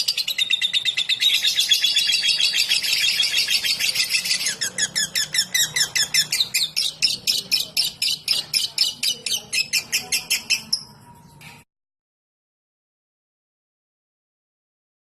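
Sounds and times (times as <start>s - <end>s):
bird rapid high chirps: 0.0s - 11.0s.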